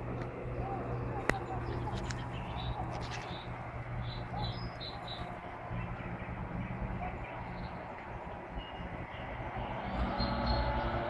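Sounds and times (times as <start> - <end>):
small songbird chirping: 0.8 - 9.3.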